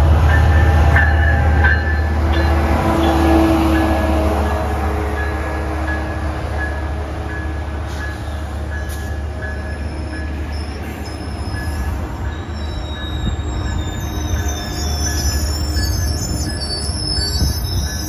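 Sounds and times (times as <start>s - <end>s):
train low rumble: 0.0s - 18.0s
train wheels squealing: 7.3s - 18.0s.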